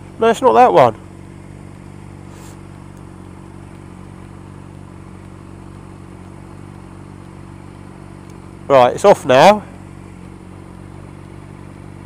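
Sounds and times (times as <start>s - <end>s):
motorcycle engine idling: 0.0s - 12.0s
short hiss: 2.1s - 2.9s.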